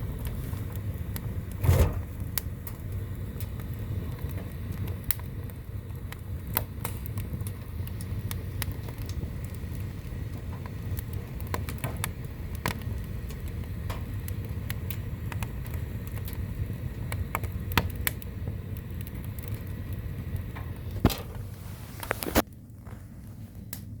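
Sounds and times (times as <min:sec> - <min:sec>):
low rumble: 0:00.0 - 0:06.4
firewood crackling and popping: 0:00.0 - 0:24.0.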